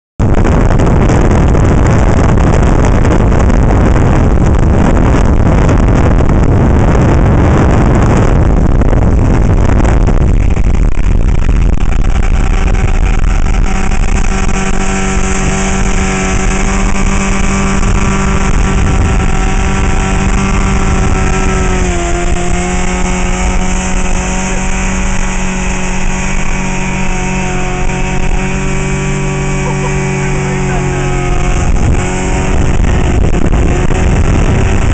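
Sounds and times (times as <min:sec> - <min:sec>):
outboard motor at speed: 0:00.2 - 0:34.9
rushing water noise: 0:07.9 - 0:34.9.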